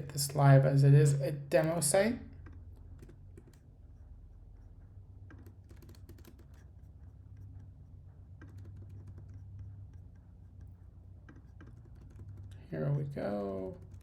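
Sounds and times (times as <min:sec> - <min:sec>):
computer keyboard keys clicking: 0:05.3 - 0:06.6.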